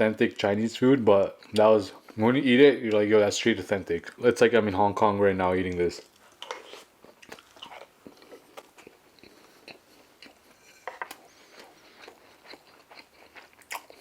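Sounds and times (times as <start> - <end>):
person chewing food: 6.0 - 14.0.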